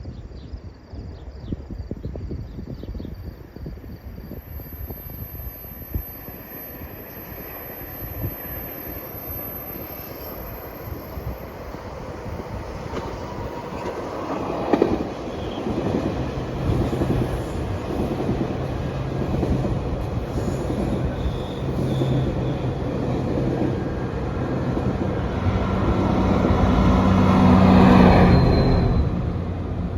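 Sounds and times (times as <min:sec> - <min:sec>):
diesel locomotive engine hum: 0:03.5 - 0:29.9
train wheels clicking on rails: 0:12.3 - 0:28.2.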